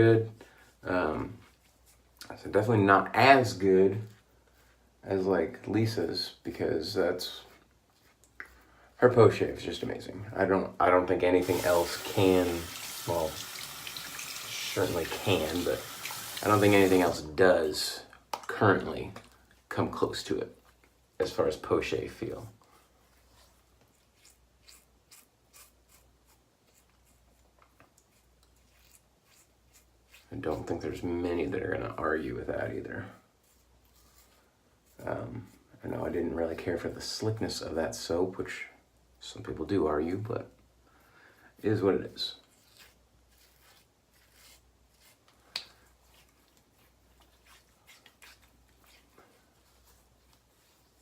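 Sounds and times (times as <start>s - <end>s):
faint rustling and handling: 0.0s - 2.7s, 3.4s - 10.5s, 11.3s - 38.1s, 40.3s - 51.0s
faint rubbing strokes: 0.5s - 2.2s, 4.0s - 5.0s, 7.3s - 8.8s, 11.4s - 17.2s, 22.2s - 30.8s, 32.6s - 35.7s, 42.2s - 51.0s.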